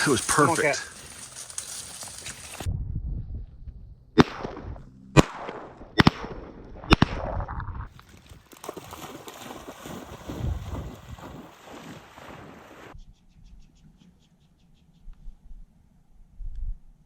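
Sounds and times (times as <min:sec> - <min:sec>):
shotgun shots: 0:04.2 - 0:07.4.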